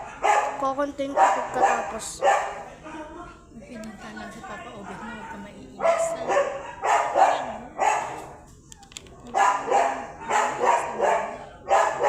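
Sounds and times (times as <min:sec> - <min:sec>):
dog barking: 0:00.0 - 0:03.2, 0:04.8 - 0:08.4, 0:09.3 - 0:12.0.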